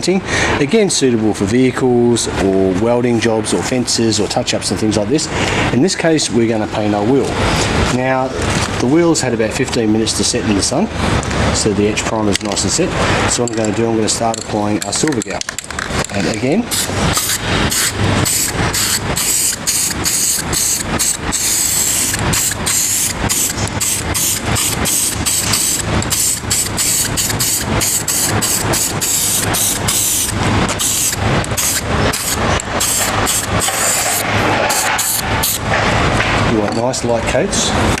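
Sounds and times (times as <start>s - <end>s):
steady low hum: 0.0s - 38.0s
aerosol spray can hissing: 16.7s - 35.6s.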